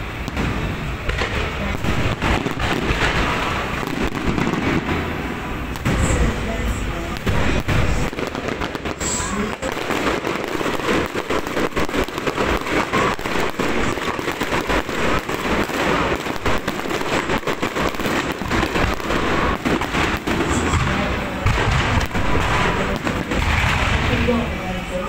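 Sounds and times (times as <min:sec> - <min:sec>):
electronic firecrackers popping: 0:00.0 - 0:25.0.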